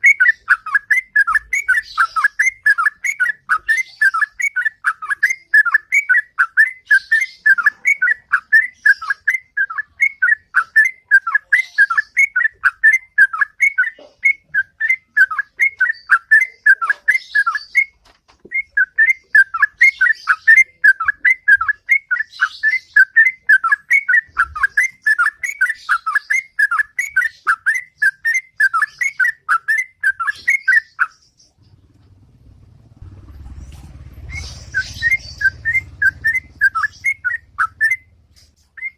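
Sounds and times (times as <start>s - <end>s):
bird singing rapid repeated notes: 0.0s - 38.9s
low rumble: 31.6s - 38.4s.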